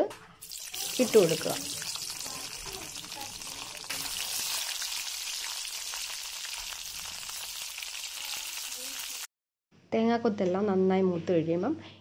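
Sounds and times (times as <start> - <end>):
coconut sizzling in hot oil: 0.4 - 9.3.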